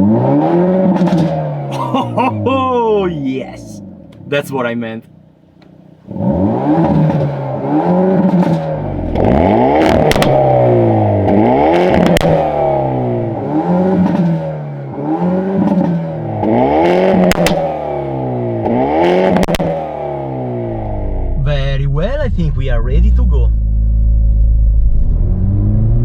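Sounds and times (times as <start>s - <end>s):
car engine revving: 3.8s - 26.0s
exhaust pops and crackles: 8.2s - 10.4s, 17.2s - 17.6s.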